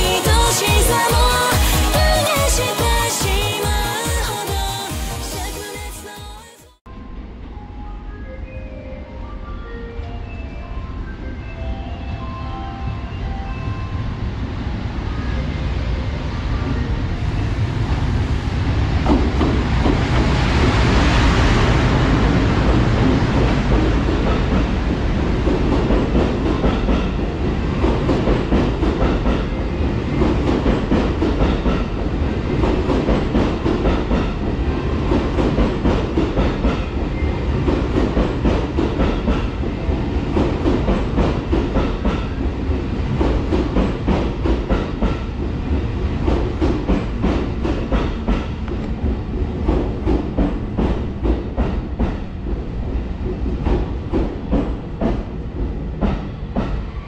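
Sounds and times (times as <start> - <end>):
train rushing past: 0.0 - 57.0.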